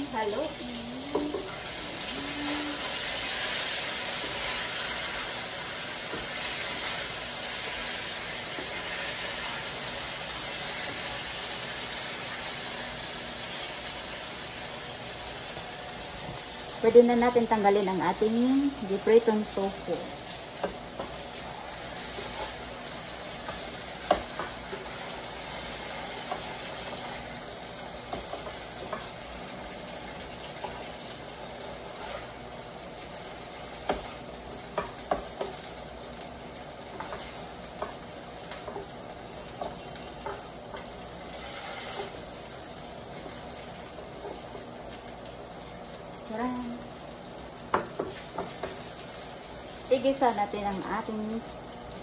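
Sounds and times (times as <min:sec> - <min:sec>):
tofu sizzling in hot oil: 0:00.0 - 0:52.0
spatula scraping a pan: 0:20.6 - 0:27.4, 0:31.6 - 0:32.5, 0:39.6 - 0:42.3.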